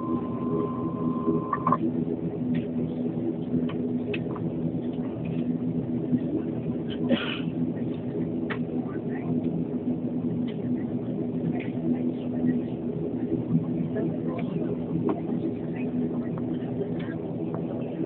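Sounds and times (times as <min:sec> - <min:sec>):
turboprop engines droning: 0:00.0 - 0:18.0.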